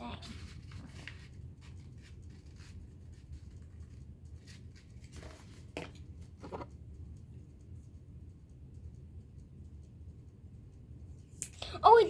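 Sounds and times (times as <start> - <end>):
low steady hum: 0.0 - 12.0
paper rustling and crinkling: 0.1 - 6.7.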